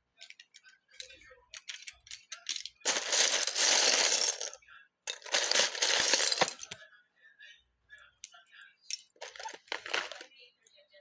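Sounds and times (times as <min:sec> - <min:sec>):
loose plastic bricks clattering: 0:01.6 - 0:04.5, 0:05.1 - 0:06.8, 0:09.2 - 0:10.2.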